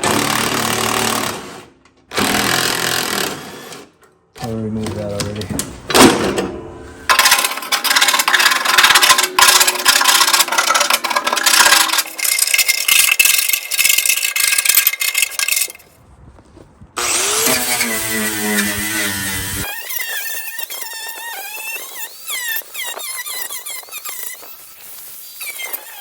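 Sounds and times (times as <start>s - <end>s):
rasping scraping on hard surface: 7.1s - 15.9s, 17.1s - 26.0s.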